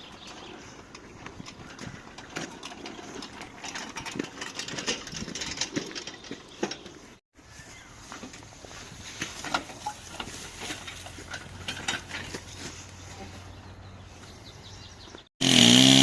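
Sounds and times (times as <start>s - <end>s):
stump grinder running: 15.4s - 16.0s.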